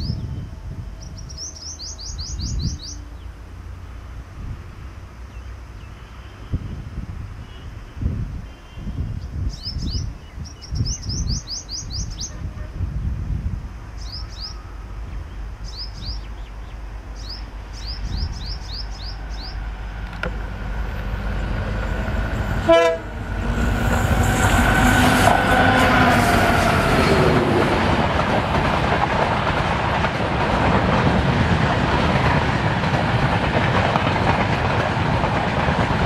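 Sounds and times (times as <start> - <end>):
wind on microphone: 0.0 - 1.4, 4.2 - 5.1, 6.3 - 16.3, 17.8 - 19.3
bird chirping: 0.0 - 3.4, 9.1 - 12.4, 14.0 - 19.6
diesel train passing: 0.0 - 36.0.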